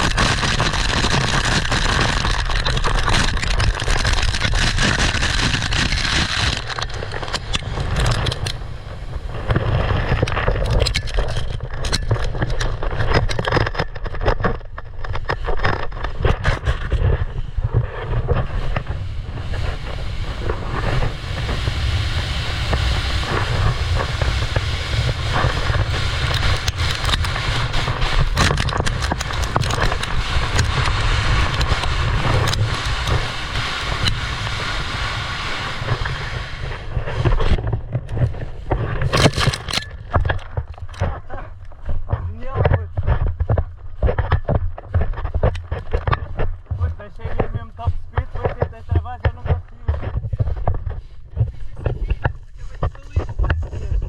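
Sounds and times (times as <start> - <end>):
gravel scraping under sliding board: 0.0 - 54.0
wind buffeting microphone: 0.0 - 54.0.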